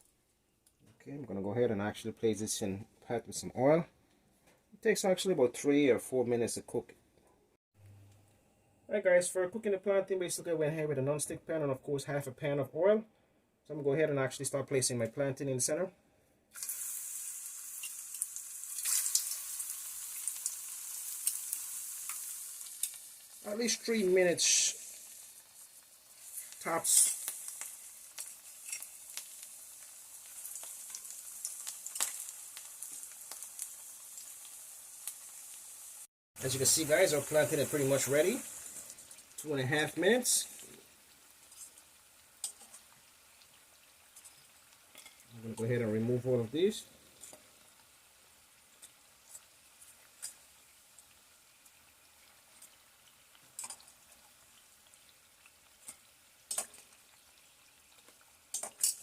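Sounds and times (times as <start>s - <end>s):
plantain sizzling in oil: 16.5s - 59.0s.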